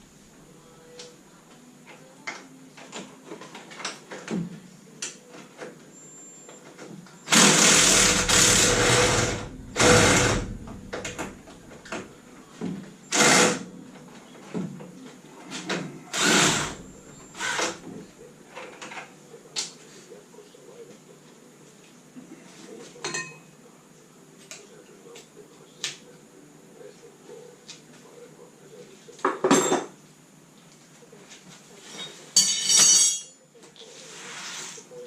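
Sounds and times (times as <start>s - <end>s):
power tool running in bursts: 7.3s - 11.2s, 16.1s - 16.8s, 17.4s - 17.8s.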